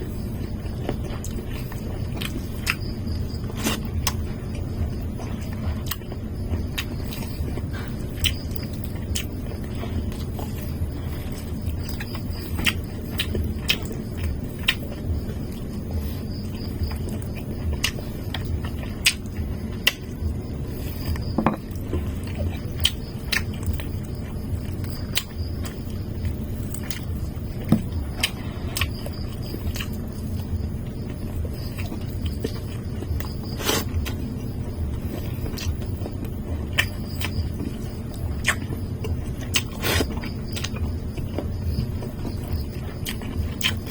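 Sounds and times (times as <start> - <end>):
low background rumble: 0.0 - 43.9
chewing and mouth smacking: 0.6 - 20.1, 20.8 - 34.3, 35.1 - 43.9
chewing mouth clicks and smacks: 5.4 - 9.4, 24.8 - 25.9, 38.4 - 43.9
crunchy chewing burst: 26.6 - 34.3, 36.7 - 43.9.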